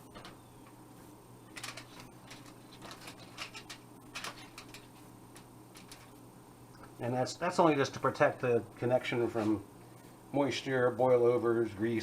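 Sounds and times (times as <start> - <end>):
steady low hum: 0.0 - 12.0
small parts clicking and tapping: 1.5 - 6.2.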